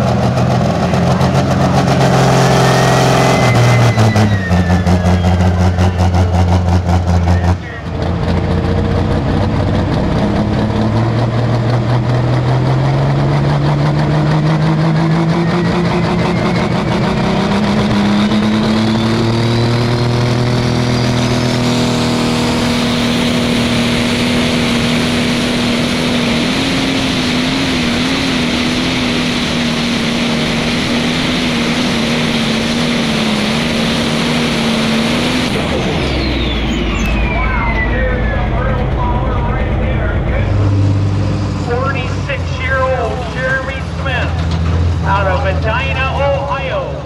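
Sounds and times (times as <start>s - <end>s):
tractor diesel engine under load: 0.0s - 47.0s
thin high whistle: 2.7s - 6.0s, 36.2s - 38.0s.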